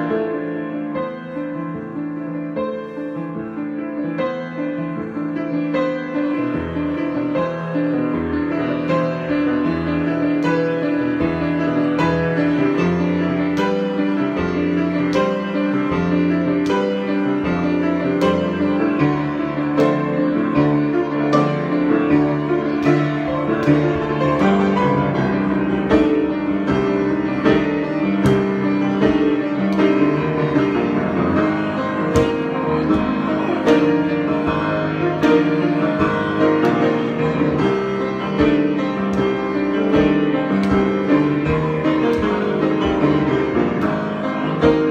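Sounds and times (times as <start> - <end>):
solo piano: 0.0 - 44.9.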